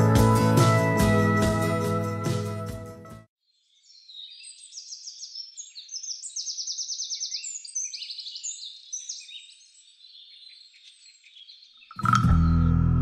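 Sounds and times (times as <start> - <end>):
wild birds singing: 3.5 - 12.8.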